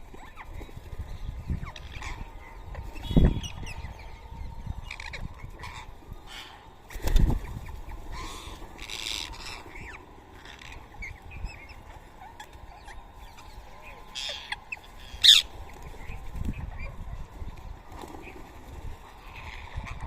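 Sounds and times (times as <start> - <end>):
parakeets chirping: 7.8 - 15.6.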